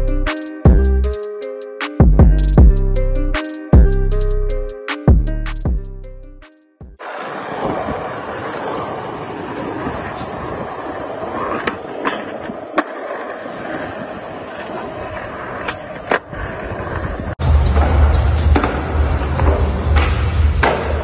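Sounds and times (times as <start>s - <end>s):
music with heavy bass: 0.0s - 7.0s, 17.4s - 21.0s
skateboard clacks: 7.0s - 21.0s
skateboard wheels rolling on asphalt: 7.0s - 21.0s.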